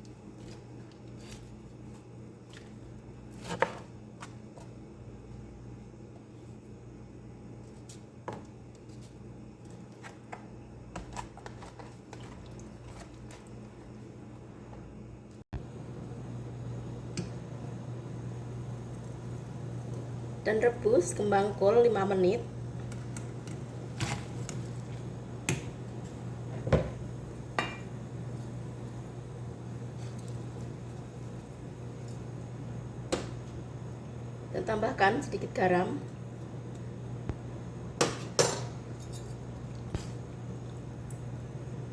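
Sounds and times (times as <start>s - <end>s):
steady low hum: 13.0s - 41.9s.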